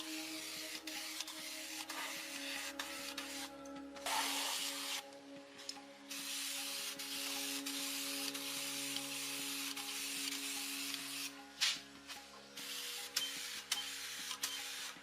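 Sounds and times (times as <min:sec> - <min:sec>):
spray hissing: 0:04.1 - 0:05.0.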